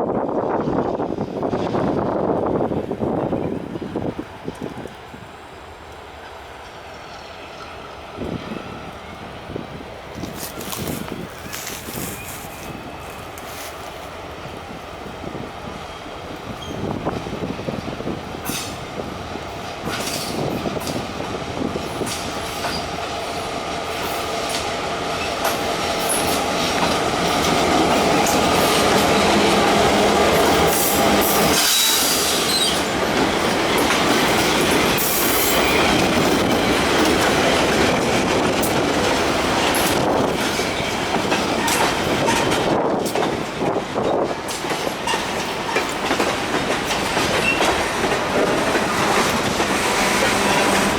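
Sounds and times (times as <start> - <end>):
train wheels clicking over rail joints: 10.1 - 14.2, 16.4 - 50.9.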